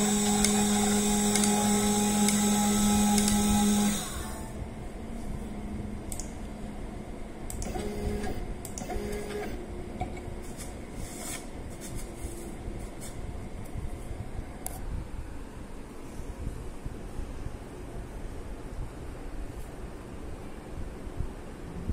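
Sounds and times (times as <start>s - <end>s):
stepper motors whining: 0.0s - 4.6s.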